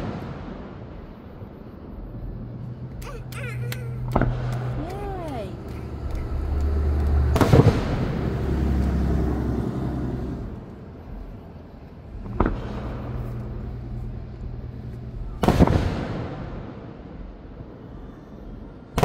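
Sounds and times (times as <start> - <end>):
low rumble: 0.0 - 19.0
firework shells bursting: 3.8 - 5.2.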